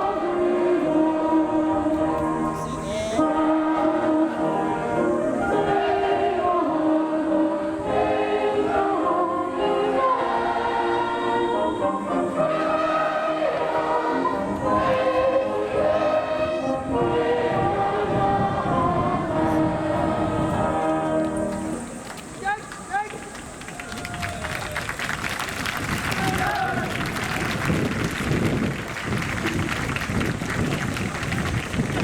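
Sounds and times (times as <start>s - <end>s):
choir singing with accompaniment: 0.0s - 22.4s.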